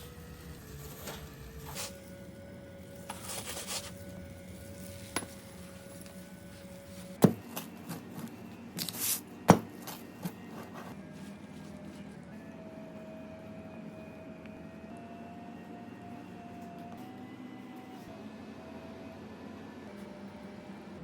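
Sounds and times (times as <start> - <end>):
scraping and rubbing: 0.0 - 11.0
faint hum: 0.0 - 14.7.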